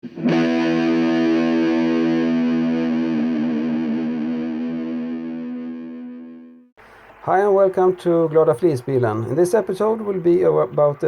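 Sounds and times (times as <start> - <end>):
distorted electric guitar chord: 0.0 - 6.7.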